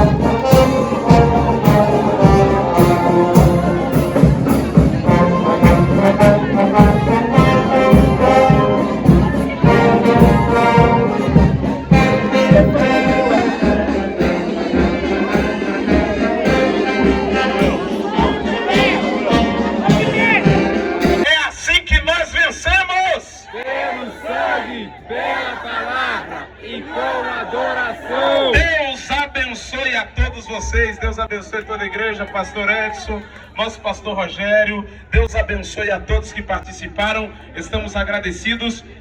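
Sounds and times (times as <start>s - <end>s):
brass band playing a march: 0.0s - 21.3s
drum beat: 0.0s - 21.3s, 28.6s - 28.8s.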